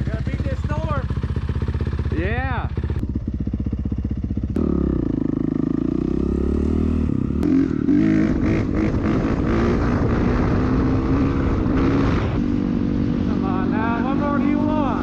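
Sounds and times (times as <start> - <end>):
dirt bike engine revving: 0.0 - 15.0
rushing wind: 5.0 - 15.0.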